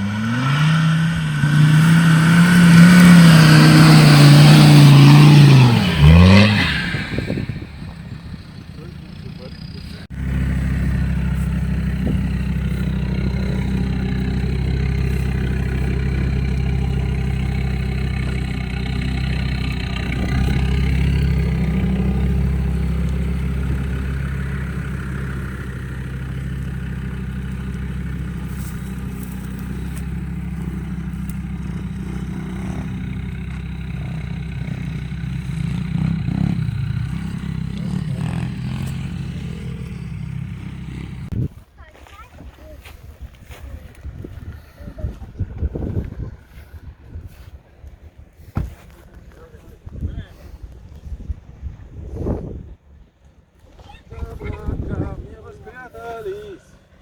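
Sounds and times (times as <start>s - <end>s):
suv engine under load: 0.0s - 41.5s.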